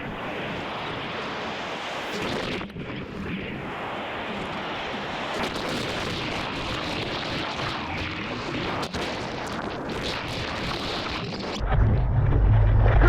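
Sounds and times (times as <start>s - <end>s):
ocean surf breaking: 0.0s - 9.0s
wind buffeting microphone: 0.0s - 13.0s.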